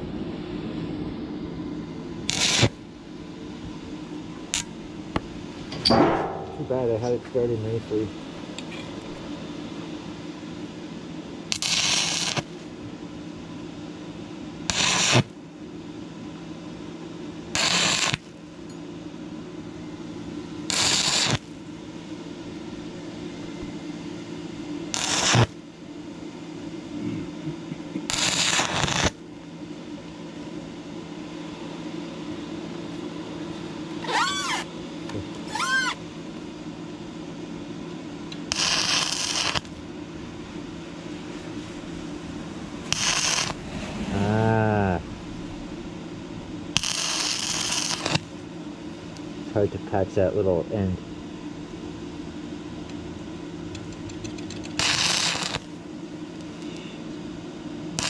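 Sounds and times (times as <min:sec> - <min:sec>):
steady low hum: 0:00.0 - 0:58.0
welding arc crackling: 0:02.2 - 0:03.8, 0:04.4 - 0:07.2, 0:11.5 - 0:12.6, 0:14.6 - 0:15.4, 0:17.6 - 0:18.4, 0:20.7 - 0:21.6, 0:24.9 - 0:25.6, 0:28.0 - 0:29.2, 0:34.0 - 0:34.7, 0:35.3 - 0:36.0, 0:38.3 - 0:45.0, 0:45.9 - 0:49.6, 0:52.9 - 0:55.8
short squeals: 0:34.0 - 0:34.7, 0:35.4 - 0:36.0.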